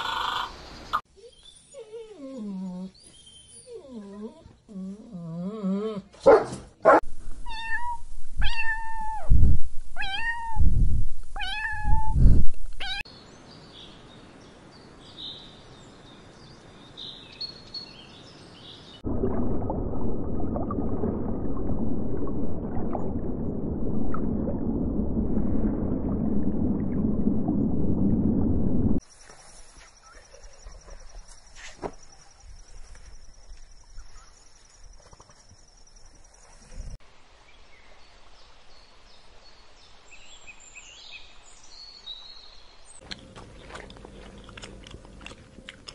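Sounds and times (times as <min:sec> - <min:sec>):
underwater rumble and hiss: 0:19.1 - 0:29.0.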